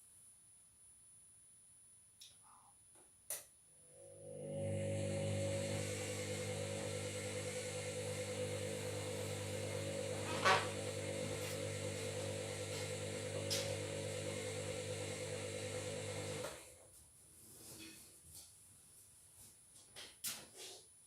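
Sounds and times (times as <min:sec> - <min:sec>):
washing machine humming: 0:04.0 - 0:16.6.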